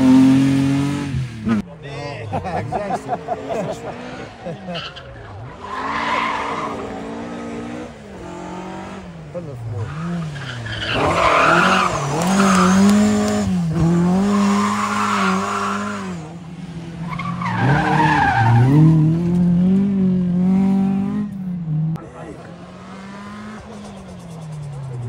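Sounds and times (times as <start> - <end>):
car engine revving: 2.4 - 25.0
tyres squealing on tarmac: 17.1 - 18.8.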